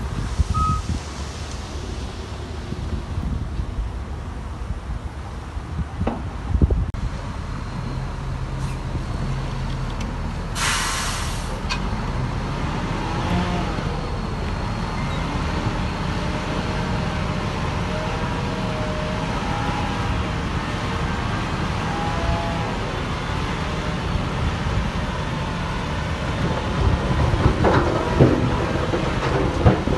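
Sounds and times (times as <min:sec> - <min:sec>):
heavy diesel machinery running: 0:06.7 - 0:29.9
sharp hiss of released air: 0:10.6 - 0:11.6.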